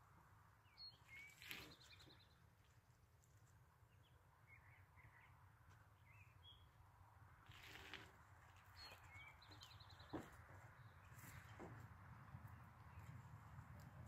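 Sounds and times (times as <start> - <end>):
brief rustle: 7.5 - 10.3.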